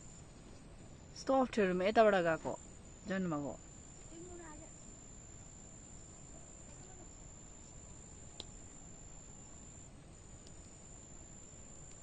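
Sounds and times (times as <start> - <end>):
cricket trilling: 1.0 - 12.0.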